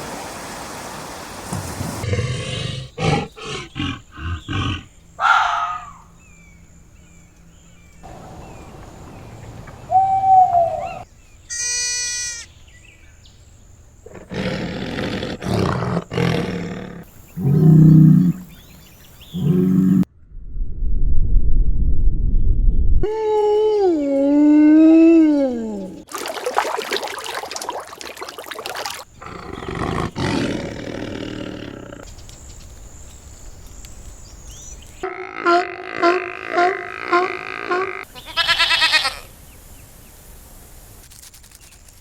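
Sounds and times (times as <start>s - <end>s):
animal calls: 2.9s - 6.1s, 8.1s - 12.4s
high pitched animal cry: 9.9s - 12.5s, 35.1s - 39.2s.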